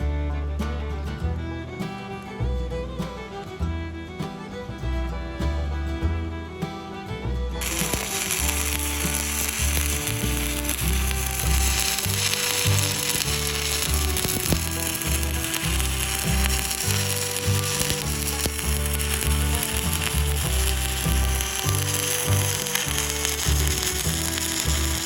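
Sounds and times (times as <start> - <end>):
background music with bass line: 0.0 - 25.0
welding arc crackling: 7.6 - 25.0.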